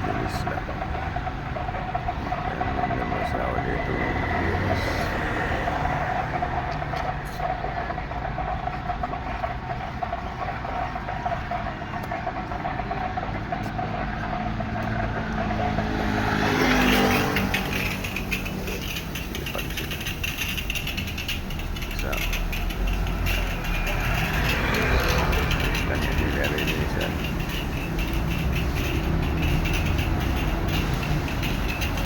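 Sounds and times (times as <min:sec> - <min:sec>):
motor vehicle passing: 0:00.0 - 0:32.0.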